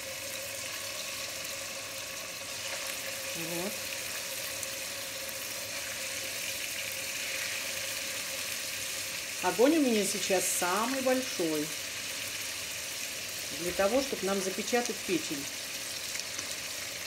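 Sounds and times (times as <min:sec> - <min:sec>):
liver sizzling in a frying pan: 0:00.0 - 0:17.0.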